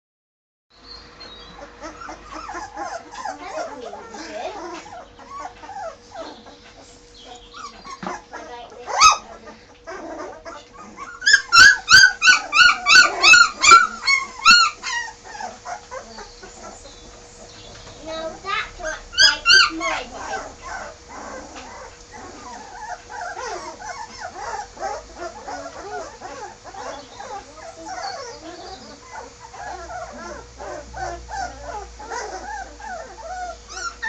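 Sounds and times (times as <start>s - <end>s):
puppies whimpering and yipping: 0.9s - 34.0s.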